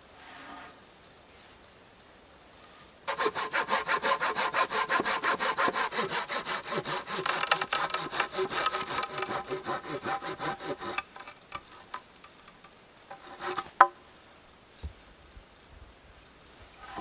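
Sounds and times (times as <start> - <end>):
hand saw cutting wood: 3.1 - 12.0, 13.1 - 13.9.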